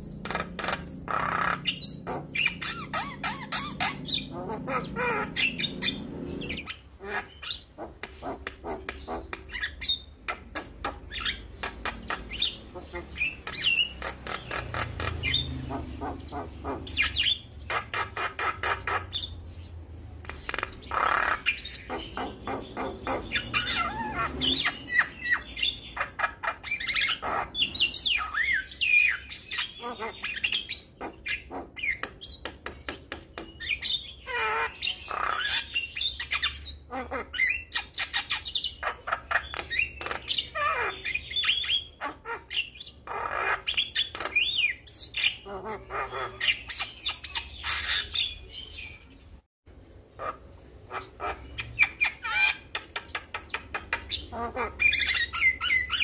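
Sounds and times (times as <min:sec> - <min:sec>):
myna bird singing: 0:00.0 - 0:56.0.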